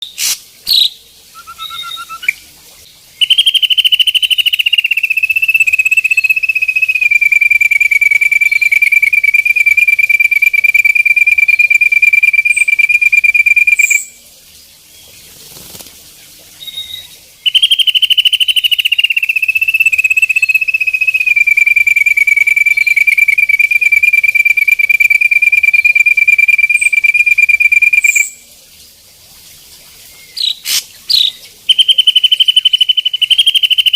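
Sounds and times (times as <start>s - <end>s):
bird high steady trill: 0.0s - 2.4s, 3.2s - 14.2s, 16.6s - 28.4s, 30.1s - 33.9s
brief bird calls: 0.0s - 2.4s, 30.3s - 33.9s.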